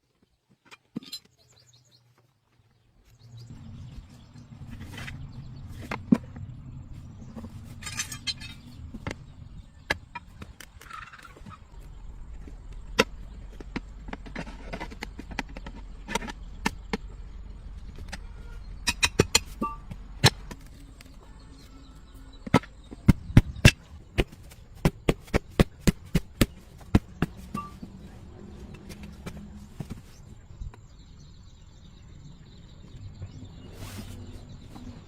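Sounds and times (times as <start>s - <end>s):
low hum: 3.1s - 24.7s.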